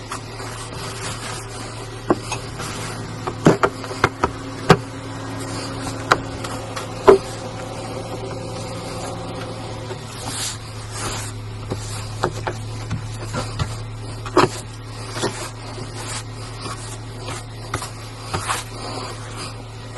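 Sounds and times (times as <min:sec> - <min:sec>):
car cabin drone: 0:00.0 - 0:19.9.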